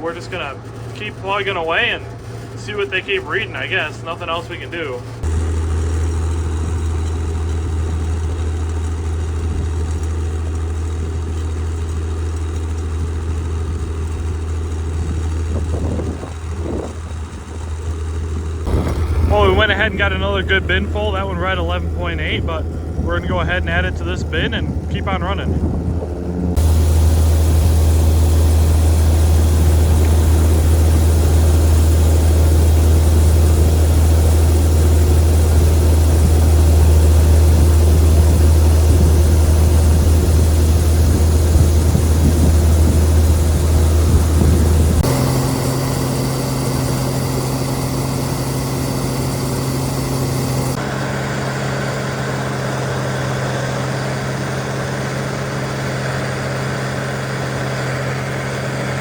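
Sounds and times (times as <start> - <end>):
farm machinery engines humming: 0.0 - 59.0.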